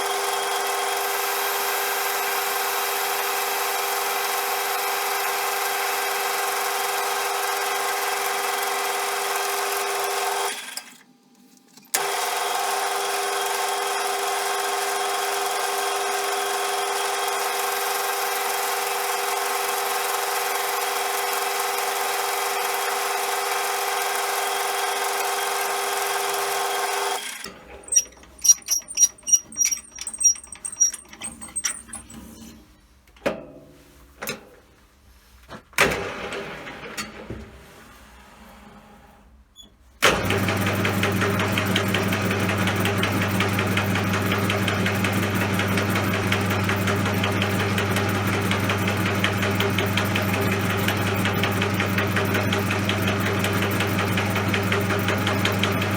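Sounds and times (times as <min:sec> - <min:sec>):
metal lathe whining: 0:27.8 - 0:32.2.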